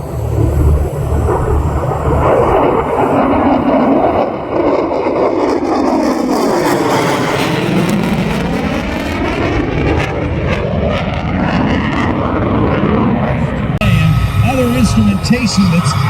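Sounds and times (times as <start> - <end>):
jet flying past: 0.0 - 16.0.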